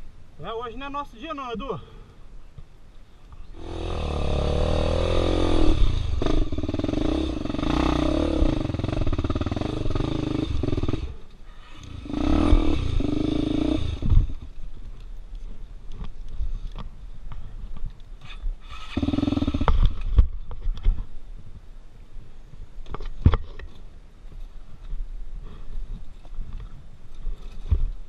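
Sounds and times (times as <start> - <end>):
dirt bike engine revving: 3.6 - 14.5, 18.7 - 20.1.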